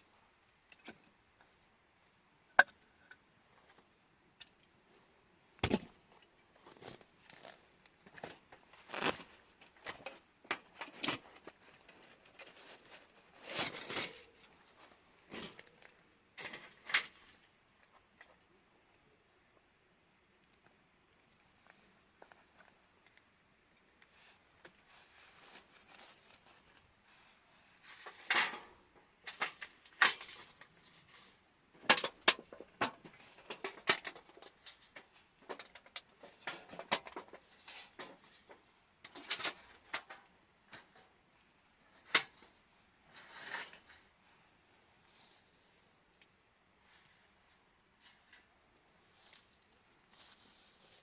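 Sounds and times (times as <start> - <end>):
camping gear clicking and clinking: 5.6 - 14.5, 15.3 - 18.4.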